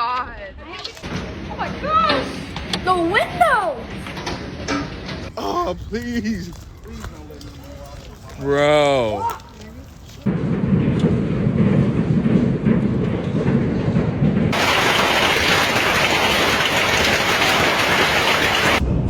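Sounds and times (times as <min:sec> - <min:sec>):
heavy hail pounding: 0:01.0 - 0:07.0, 0:10.3 - 0:18.8
hissing rain downpour: 0:14.5 - 0:18.8.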